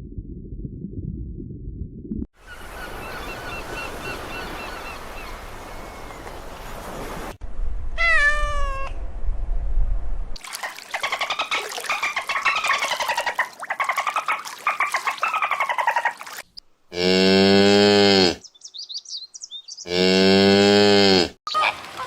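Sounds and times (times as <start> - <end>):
cat meowing: 8.0 - 9.0.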